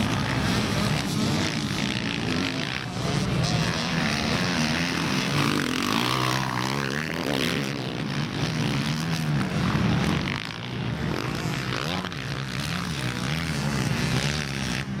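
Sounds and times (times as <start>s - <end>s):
quad bike engines revving: 0.0s - 15.0s.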